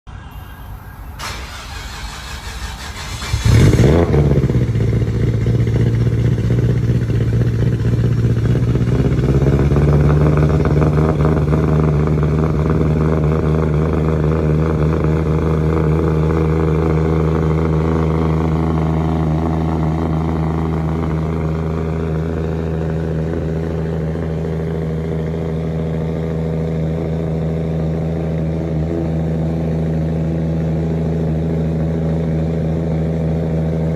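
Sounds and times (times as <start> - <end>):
engine idling: 0.1 - 33.9
engine starter cranking: 1.1 - 4.2.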